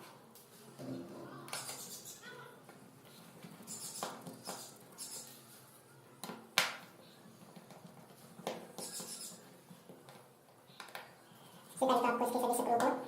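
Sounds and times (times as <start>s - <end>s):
screwdriver clicking and scraping: 3.7s - 5.3s, 8.8s - 9.4s.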